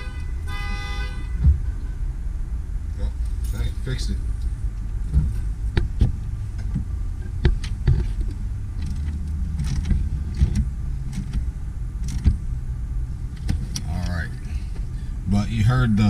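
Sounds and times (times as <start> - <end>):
low steady rumble: 0.0 - 16.0
metallic clicks and knocks: 5.1 - 12.4.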